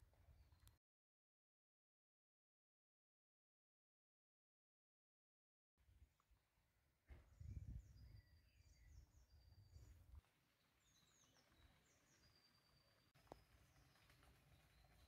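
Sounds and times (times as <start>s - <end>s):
small birds chirping: 7.2s - 15.0s.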